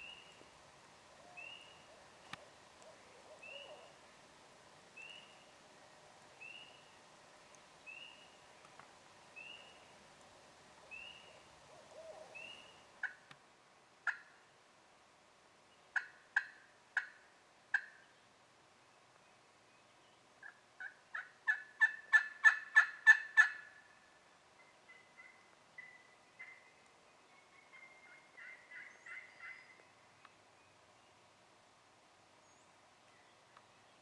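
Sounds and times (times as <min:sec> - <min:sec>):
turkey clucks: 0:01.1 - 0:04.0, 0:10.9 - 0:13.2, 0:16.0 - 0:18.0, 0:20.4 - 0:23.8, 0:24.6 - 0:26.7, 0:27.5 - 0:29.8
turkey yelps: 0:01.2 - 0:04.0, 0:11.0 - 0:13.2, 0:20.4 - 0:23.8, 0:27.6 - 0:29.6.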